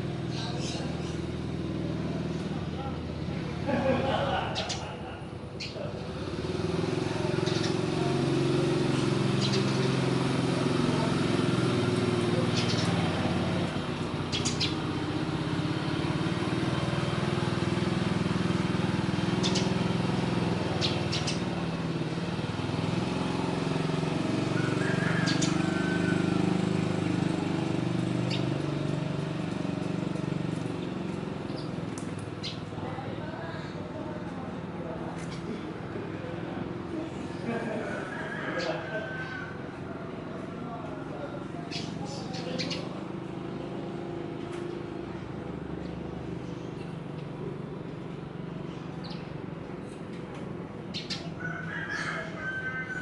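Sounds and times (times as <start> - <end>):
engine idling: 0.0 - 52.8
high bird chirps: 14.3 - 14.8, 19.4 - 19.8.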